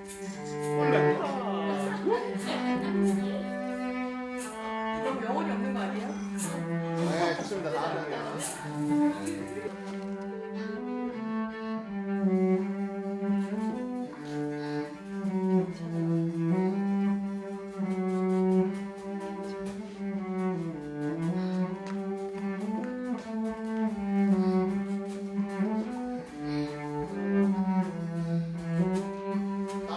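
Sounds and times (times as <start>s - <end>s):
low bowed string melody: 0.0s - 29.9s.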